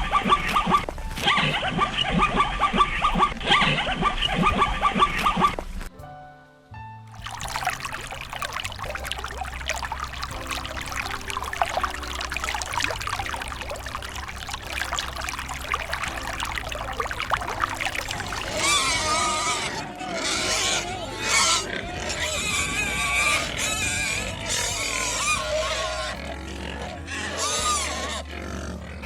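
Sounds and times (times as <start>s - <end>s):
soft background music: 0.0s - 29.0s
water splashing and trickling: 7.1s - 28.3s
loud wavering animal calls: 8.8s - 29.0s.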